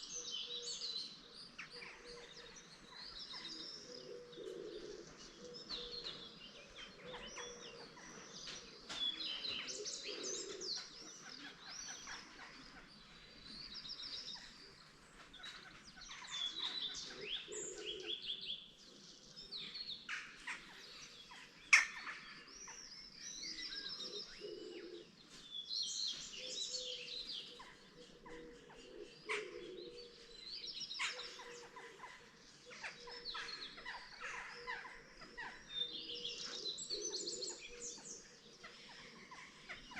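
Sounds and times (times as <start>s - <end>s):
songbirds twittering: 0.0s - 39.9s.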